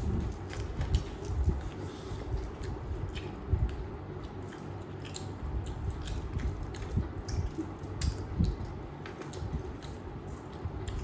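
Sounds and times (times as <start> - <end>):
chewing and crunching food: 0.0 - 11.0.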